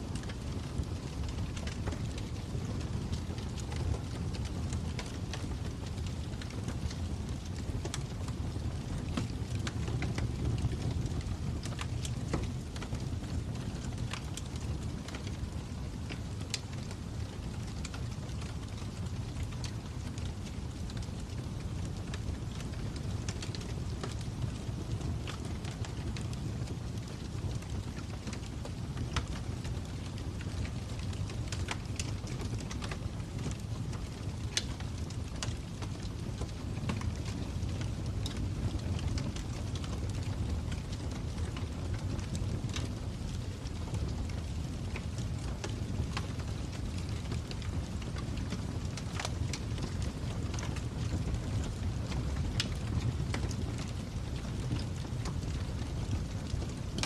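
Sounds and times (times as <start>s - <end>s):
flames rumbling: 0.0s - 57.0s
fire pops and snaps: 0.1s - 57.0s.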